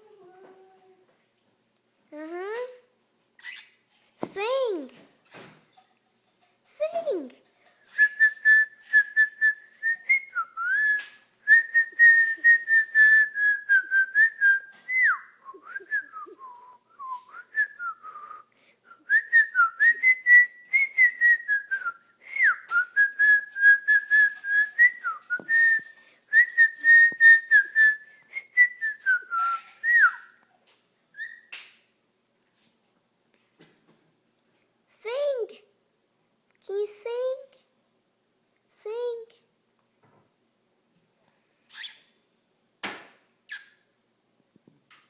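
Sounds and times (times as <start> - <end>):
cockatiel whistling: 23.2 - 30.4.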